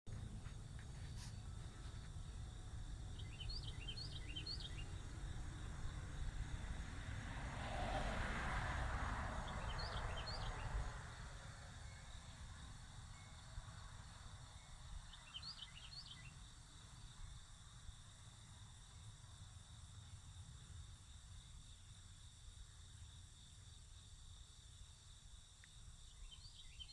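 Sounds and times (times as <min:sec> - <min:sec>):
low outdoor rumble: 0:00.1 - 0:13.6
small bird chirping: 0:03.1 - 0:05.0.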